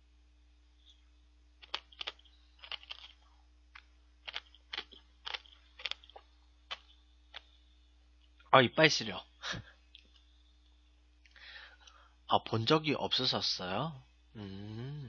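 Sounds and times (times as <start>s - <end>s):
person chewing crunchy ice: 1.6s - 3.2s, 4.2s - 7.5s.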